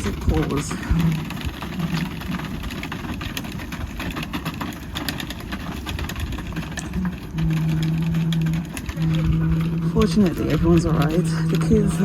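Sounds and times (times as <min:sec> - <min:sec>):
fast uneven clicking rattle: 0:00.0 - 0:12.0
steady low hum: 0:00.0 - 0:12.0
vehicle engine idling: 0:00.0 - 0:12.0.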